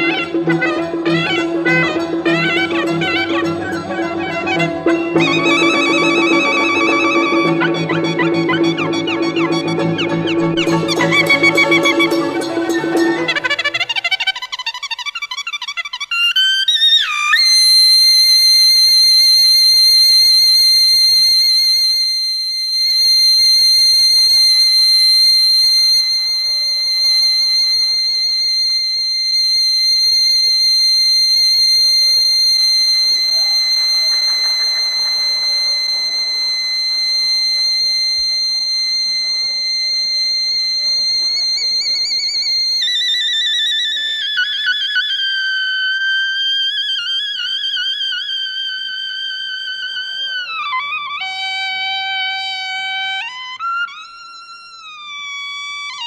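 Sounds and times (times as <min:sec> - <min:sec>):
shawm playing high piercing note: 0:00.0 - 0:14.7, 0:29.1 - 0:43.2.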